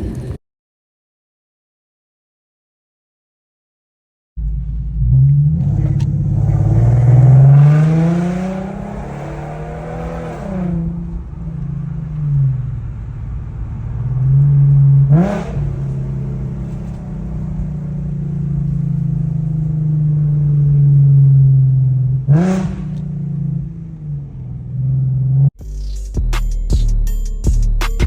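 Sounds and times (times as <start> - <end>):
car engine revving: 4.4 - 25.8.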